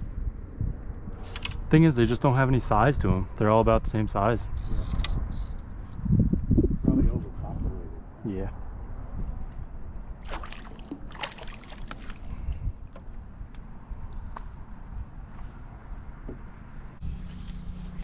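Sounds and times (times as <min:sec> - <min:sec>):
high-pitched insect drone: 0:00.0 - 0:10.2
knocks and splashes around canoe: 0:10.2 - 0:13.1.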